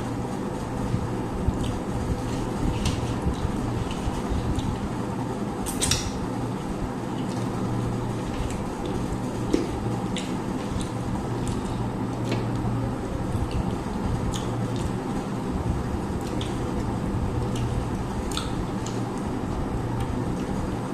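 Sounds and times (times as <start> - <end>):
steady low hum: 0.0 - 20.9
chewing: 8.3 - 12.4, 13.4 - 14.9, 16.2 - 16.6, 17.4 - 19.2.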